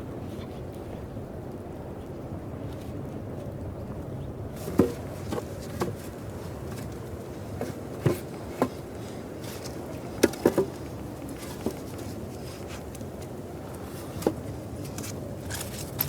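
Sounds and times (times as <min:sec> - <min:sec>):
low background noise: 0:00.0 - 0:16.0.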